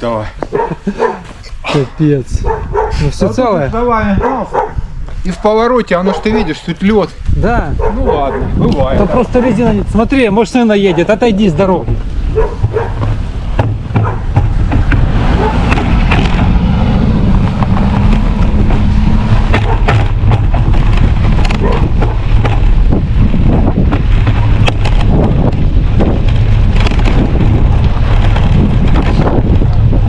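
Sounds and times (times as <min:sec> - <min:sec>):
wind buffeting microphone: 0:00.0 - 0:30.0
passing vehicle engine drone: 0:14.2 - 0:22.3.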